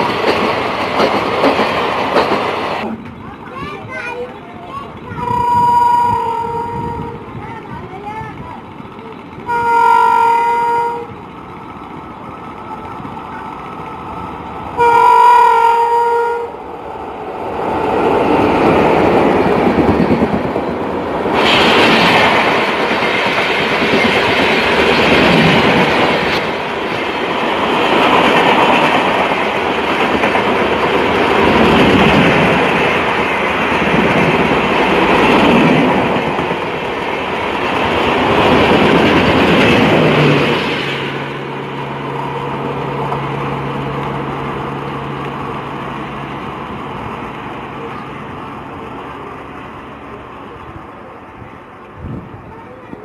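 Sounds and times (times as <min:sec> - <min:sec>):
train wheel clatter: 0:00.0 - 0:13.9, 0:17.6 - 0:41.7
train coaches rumbling past: 0:00.0 - 0:53.0
locomotive horn blasts: 0:05.2 - 0:07.2, 0:09.5 - 0:11.2, 0:14.8 - 0:16.6.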